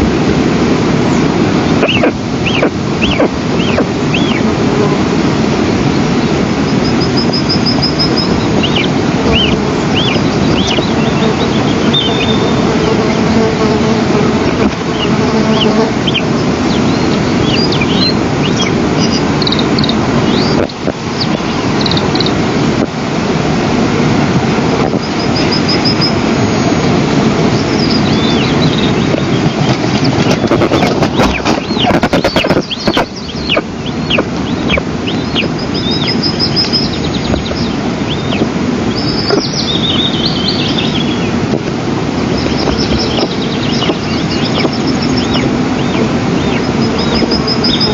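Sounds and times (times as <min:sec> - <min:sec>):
wind on microphone: 0:00.0 - 0:47.9
eagle chicks begging calls: 0:01.1 - 0:04.6, 0:05.8 - 0:22.4, 0:24.7 - 0:41.5, 0:42.1 - 0:47.9
bird chirps and whistles: 0:01.8 - 0:04.4, 0:06.7 - 0:12.6, 0:15.6 - 0:22.3, 0:25.0 - 0:26.9, 0:27.5 - 0:29.5, 0:30.4 - 0:41.3, 0:42.4 - 0:47.9.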